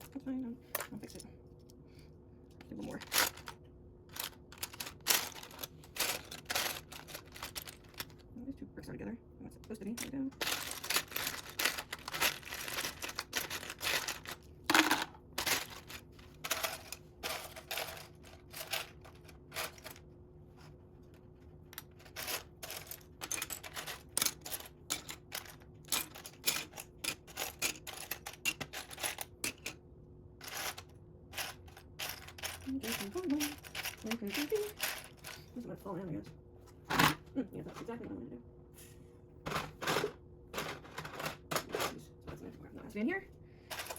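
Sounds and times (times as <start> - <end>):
faint steady hum: 0.0 - 43.9
plastic bricks clicking and clattering: 2.8 - 8.2, 10.0 - 20.0, 21.7 - 29.8, 30.4 - 35.4.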